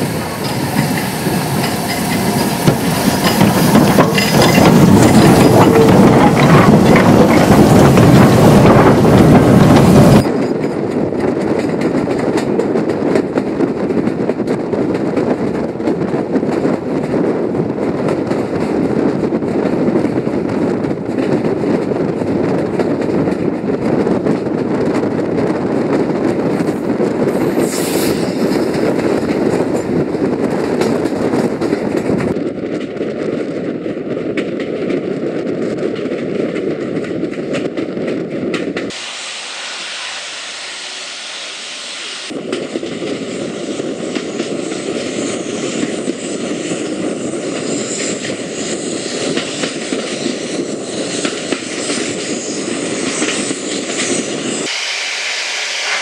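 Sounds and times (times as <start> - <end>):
train wheels rattling on rails: 0.0 - 56.0
hiss: 27.5 - 28.5, 38.9 - 42.3, 50.4 - 56.0.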